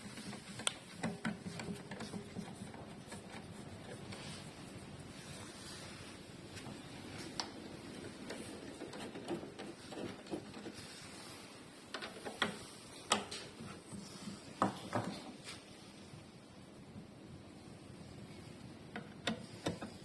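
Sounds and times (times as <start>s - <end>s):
clicks and knocks on car parts: 0.0s - 4.0s, 8.2s - 10.8s, 18.9s - 20.0s.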